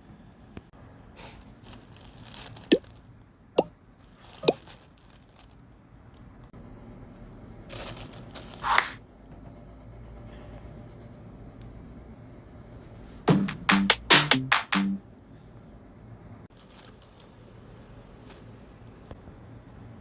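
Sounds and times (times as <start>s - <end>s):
box rustling: 7.7s - 9.0s
sharp clicks or knocks: 13.3s - 15.0s.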